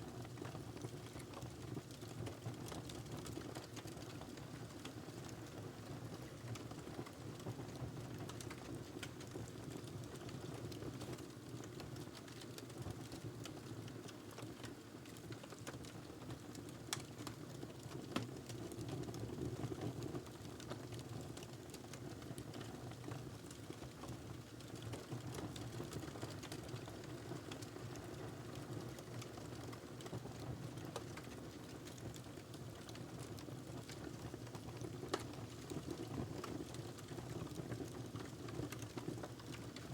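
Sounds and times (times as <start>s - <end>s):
fire popping and snapping: 7.3s - 18.8s, 20.2s - 30.2s, 30.8s - 39.9s.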